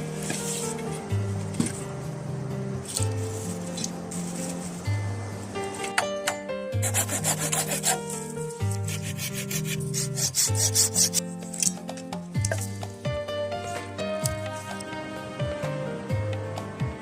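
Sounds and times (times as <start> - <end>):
scratchy rhythmic percussion: 6.8 - 14.8.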